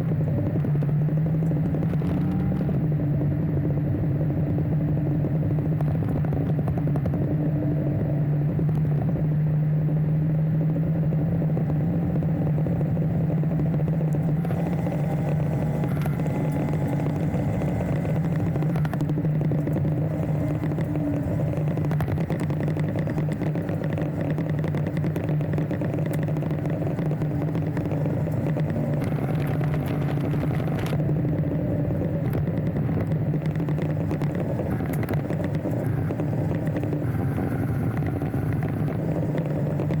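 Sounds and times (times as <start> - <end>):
motorcycle engine running: 0.0 - 40.0
light clatter: 11.5 - 40.0.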